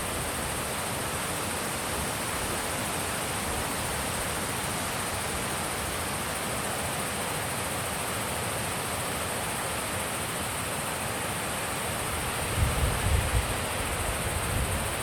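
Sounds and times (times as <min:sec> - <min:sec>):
steady wind rushing: 0:12.0 - 0:15.0.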